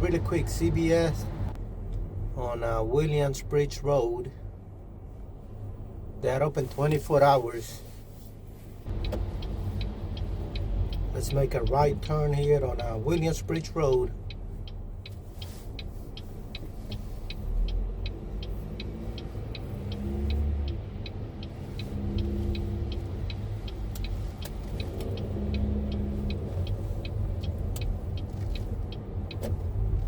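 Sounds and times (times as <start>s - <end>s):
low rumble of engine and tyres: 0.0s - 30.0s
car turn signal ticking: 8.8s - 30.0s.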